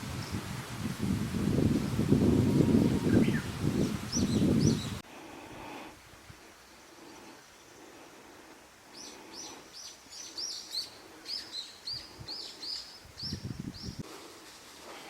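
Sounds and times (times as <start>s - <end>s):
faint outdoor hush: 0.0s - 15.0s
songbird singing repeated notes: 2.6s - 5.0s, 8.9s - 14.0s.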